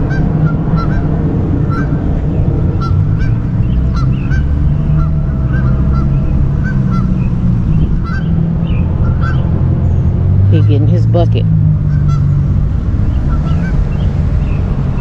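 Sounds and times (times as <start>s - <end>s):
geese honking: 0.0s - 14.1s
loud low rumble: 0.0s - 15.0s.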